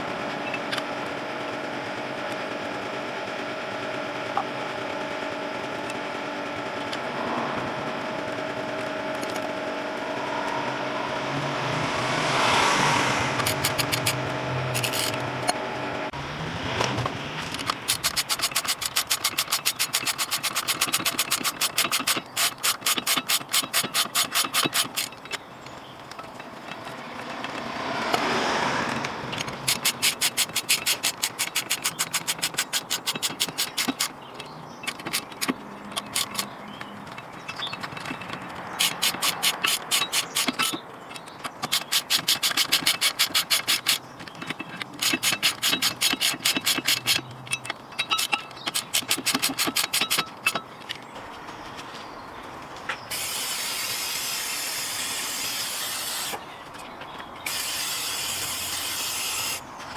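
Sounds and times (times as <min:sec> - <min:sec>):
rapid ratchet clicking: 0:13.0 - 0:15.6, 0:17.4 - 0:51.0, 0:57.4 - 0:59.7.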